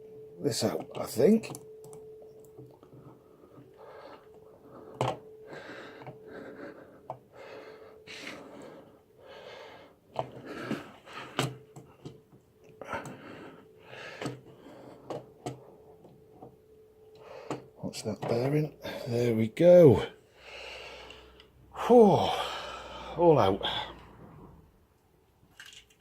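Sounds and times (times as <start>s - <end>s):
person breathing hard: 3.3s - 11.7s, 12.8s - 15.8s, 20.2s - 24.2s.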